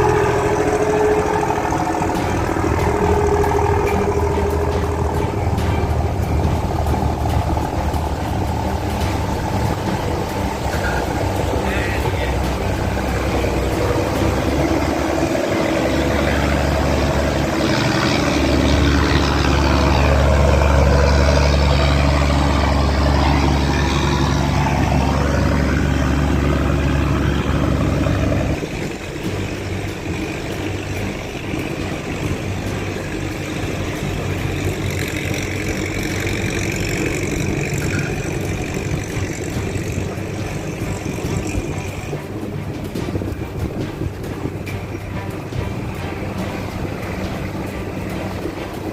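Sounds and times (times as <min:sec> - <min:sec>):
boat engine droning: 0:00.0 - 0:48.9.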